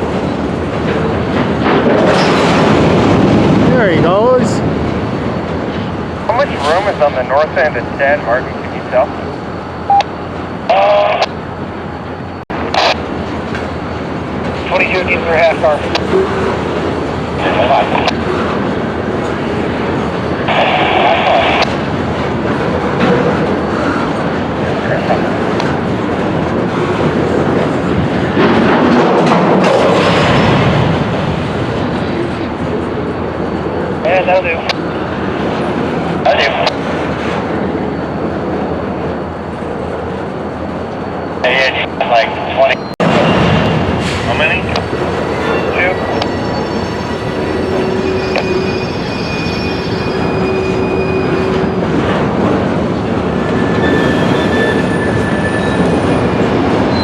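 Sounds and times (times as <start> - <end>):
freight cars rumbling on tracks: 0.0 - 57.0
wheels squealing: 44.8 - 52.4, 53.0 - 57.0.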